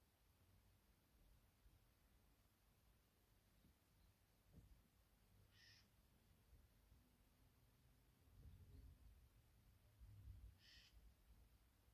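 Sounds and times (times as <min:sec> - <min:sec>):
faint low rumble: 0:06.5 - 0:11.9.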